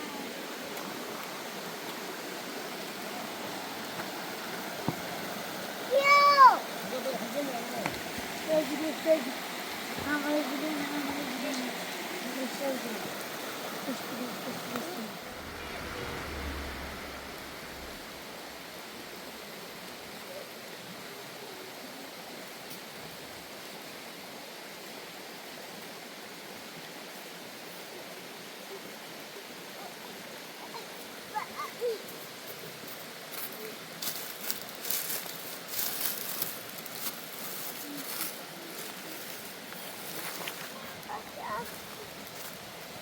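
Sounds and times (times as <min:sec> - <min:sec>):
steady rushing noise: 0:13.1 - 0:20.1.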